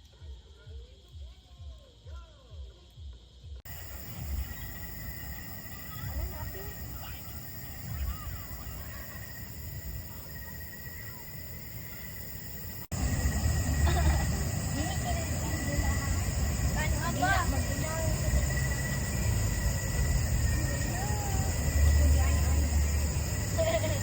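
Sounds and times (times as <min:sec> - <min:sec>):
high insect-like drone: 0:00.0 - 0:24.0
low rumble: 0:12.6 - 0:24.0.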